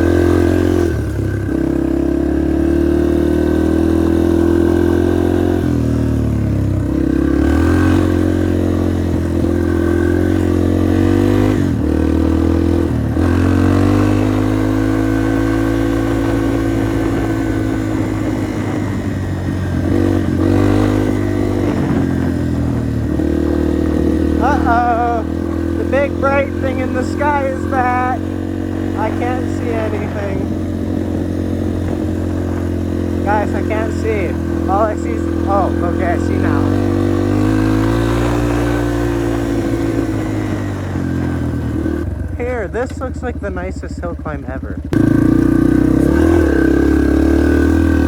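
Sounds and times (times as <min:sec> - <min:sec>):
dirt bike engine revving: 0:00.0 - 0:48.0.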